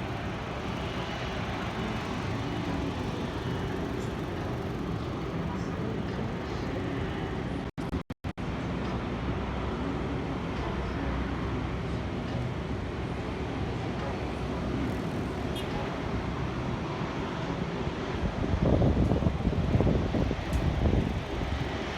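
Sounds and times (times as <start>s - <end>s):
distant vehicles rumbling: 0.0s - 8.0s.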